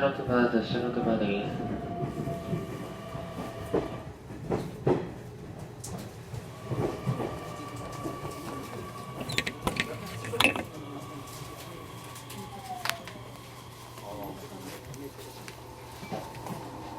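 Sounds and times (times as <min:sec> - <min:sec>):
low train rumble: 0:00.0 - 0:16.9
train wheels clicking and knocking: 0:01.6 - 0:11.0
train motor whine: 0:01.7 - 0:04.2, 0:06.4 - 0:16.9.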